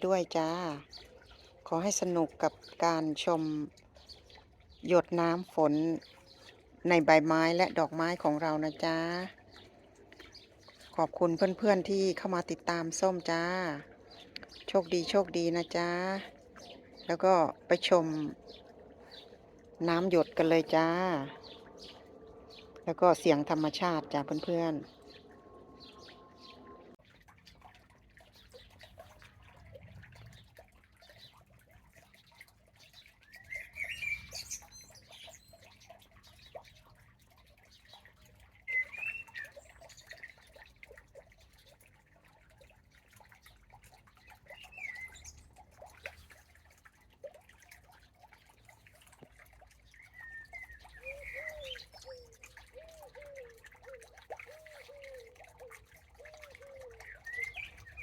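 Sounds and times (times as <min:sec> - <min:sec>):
low repeated bird notes: 0:00.0 - 0:31.4, 0:33.0 - 0:36.7, 0:49.4 - 0:58.0
birds chirping: 0:00.0 - 0:40.7, 0:43.3 - 0:46.4, 0:49.1 - 0:58.0
water dripping from leaves: 0:00.0 - 0:58.0.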